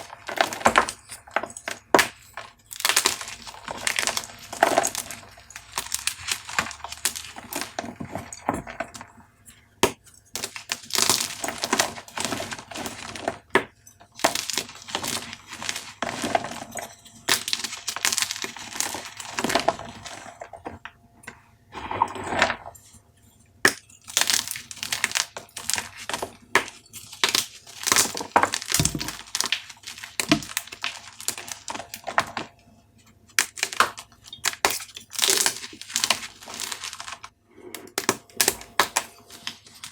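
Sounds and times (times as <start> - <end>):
chalk cubes crunching: 2.1 - 8.9, 14.2 - 20.5, 27.0 - 32.4, 34.5 - 37.3.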